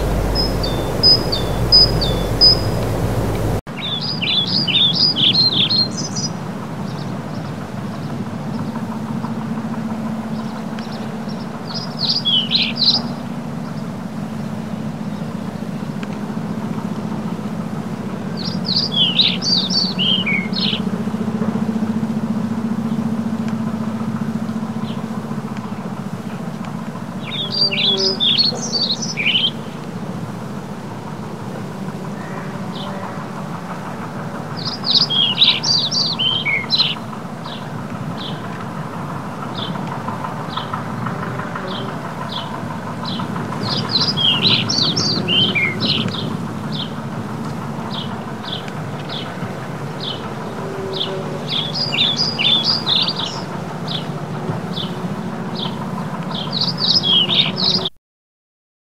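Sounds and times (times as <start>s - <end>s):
steady low rumble: 0.0s - 3.6s
rapid bird twittering: 0.0s - 6.3s, 27.2s - 29.8s, 34.6s - 38.5s, 41.6s - 47.0s, 47.8s - 55.0s
small birds chirping: 0.0s - 7.5s, 27.2s - 29.8s, 34.6s - 38.6s, 40.5s - 47.0s, 47.9s - 55.0s.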